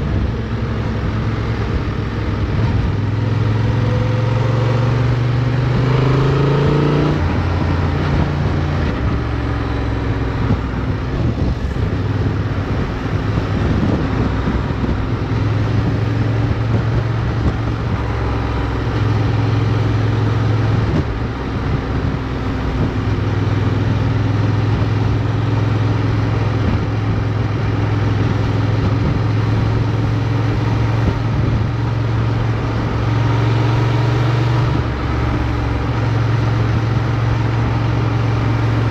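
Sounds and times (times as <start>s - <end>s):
motorcycle engine revving: 0.0s - 38.9s
wind and road noise: 0.0s - 38.9s.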